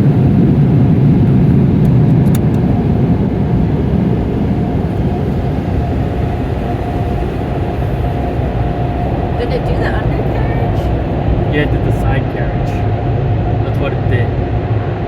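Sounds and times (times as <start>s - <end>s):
car wash brushes and water rumbling: 0.0s - 15.0s.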